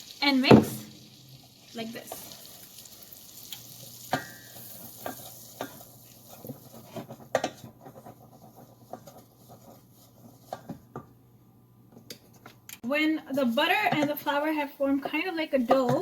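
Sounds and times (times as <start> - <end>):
faint sizzle: 0.0 - 11.6
utensil scraping a pan: 4.1 - 10.9.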